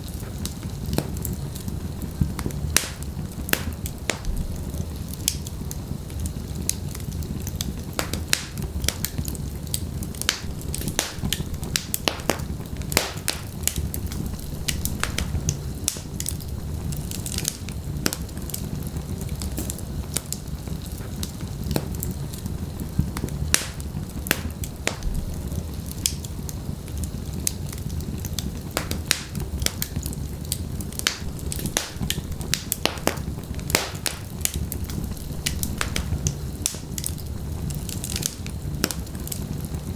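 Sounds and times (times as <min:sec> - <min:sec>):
logs crackling and popping: 0:00.0 - 0:39.9
low rumble of flames: 0:00.0 - 0:39.9.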